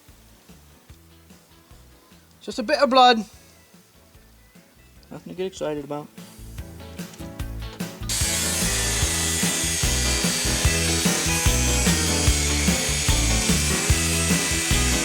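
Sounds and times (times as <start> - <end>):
background music with a beat: 6.1 - 15.0
power tool cutting sheet metal: 8.1 - 15.0.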